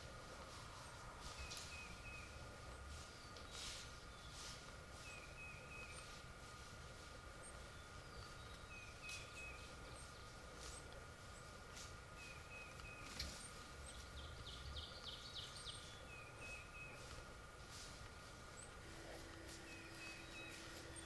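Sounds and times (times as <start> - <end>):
low background noise: 0.0 - 21.0
songbird chirps: 0.0 - 21.0
bird trill: 19.4 - 21.0.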